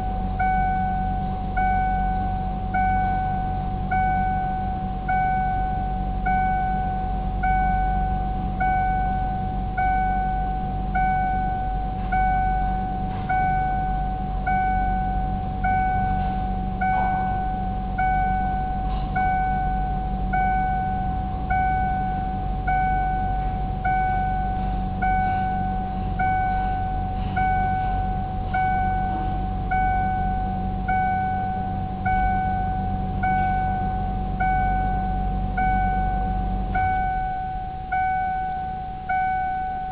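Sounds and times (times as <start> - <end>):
dashboard warning chime: 0.0 - 39.9
steady low hum: 0.0 - 39.9.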